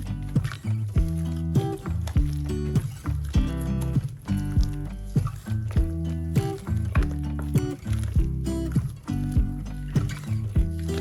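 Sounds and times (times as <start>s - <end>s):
deep kick drum beat: 0.0s - 11.0s.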